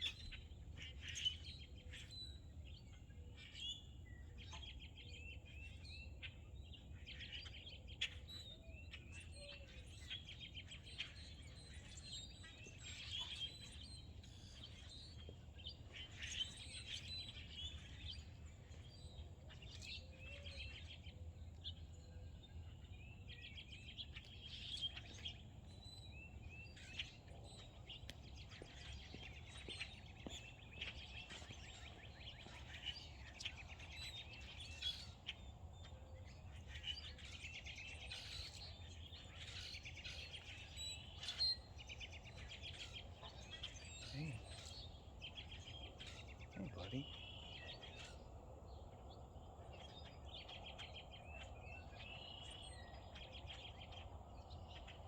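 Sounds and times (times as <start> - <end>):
songbirds chirping and singing: 0.0 - 55.0.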